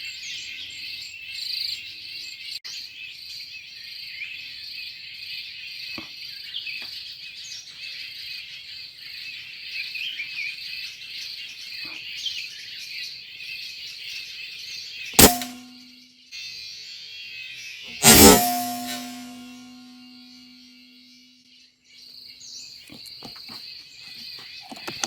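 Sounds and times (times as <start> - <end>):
sharp crack: 15.2 - 15.8, 18.0 - 20.2
short steady tone: 18.0 - 20.3.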